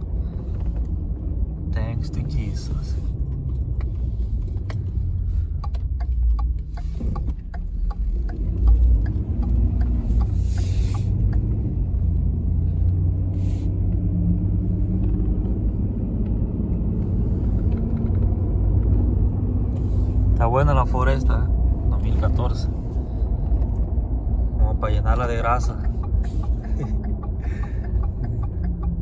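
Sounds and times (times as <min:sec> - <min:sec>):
truck engine and road rumble: 0:00.0 - 0:29.0
light ticks: 0:03.2 - 0:13.0, 0:24.9 - 0:29.0.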